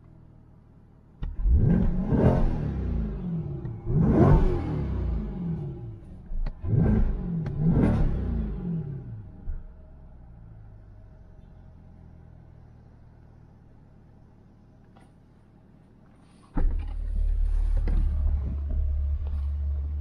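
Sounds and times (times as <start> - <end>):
car engine revving: 1.2 - 9.4.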